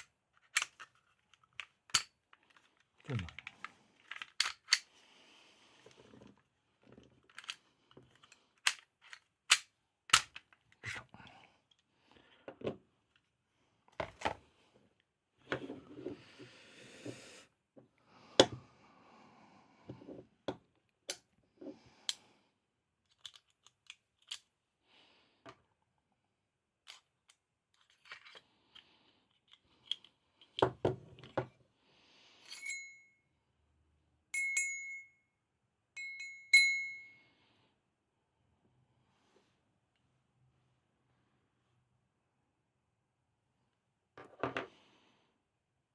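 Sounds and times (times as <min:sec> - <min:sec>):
metal pistol parts clicking: 0:00.0 - 0:02.6, 0:03.4 - 0:04.8, 0:08.2 - 0:10.6, 0:23.1 - 0:24.5
ringing metallic clinks: 0:32.5 - 0:33.2, 0:34.4 - 0:35.2, 0:36.0 - 0:37.2.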